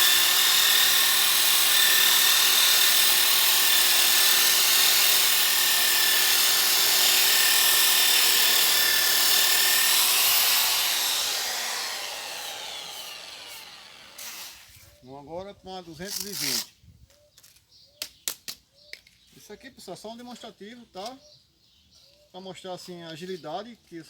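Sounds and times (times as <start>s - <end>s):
power sander whining on wood: 0.0s - 14.7s.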